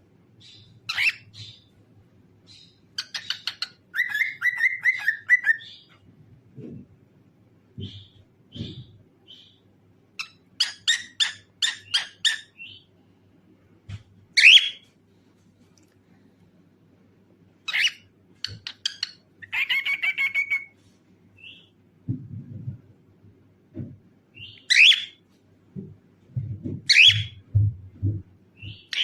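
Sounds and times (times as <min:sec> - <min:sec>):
cockatiel chirping and calling: 0:00.5 - 0:01.7, 0:02.5 - 0:06.0, 0:10.2 - 0:12.8, 0:14.4 - 0:14.9, 0:17.6 - 0:20.8, 0:24.4 - 0:25.2, 0:26.9 - 0:27.4, 0:28.6 - 0:29.0.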